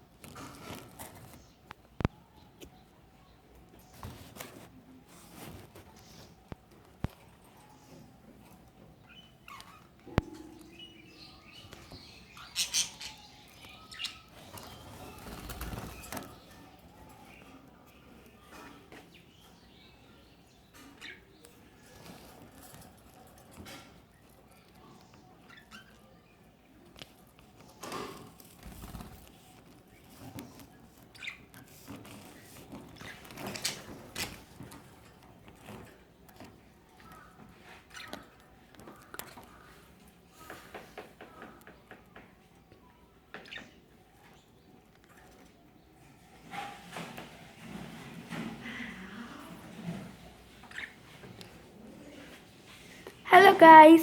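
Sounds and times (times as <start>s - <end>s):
bird chirps: 9.0s - 17.6s
budgerigars chirping: 10.8s - 14.4s.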